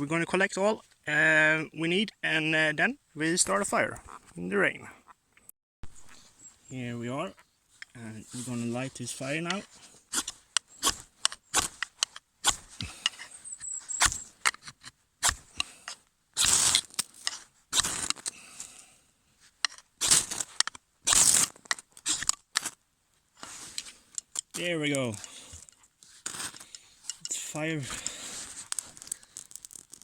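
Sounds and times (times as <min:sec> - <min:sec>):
fire striker scraping: 0:07.8 - 0:18.4, 0:19.6 - 0:22.8, 0:23.4 - 0:30.0.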